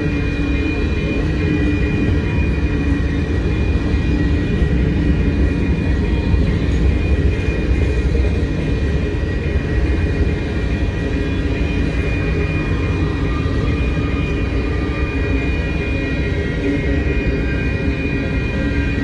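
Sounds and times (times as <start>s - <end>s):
steel wheels rumbling on rails: 0.0s - 19.0s.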